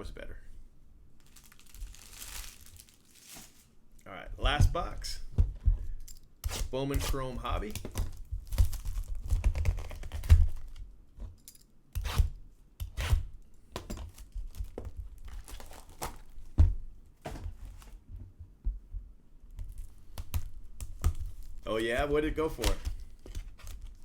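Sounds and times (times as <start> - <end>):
packaging torn and crinkled: 1.2 - 3.7, 7.9 - 10.8, 14.4 - 16.3.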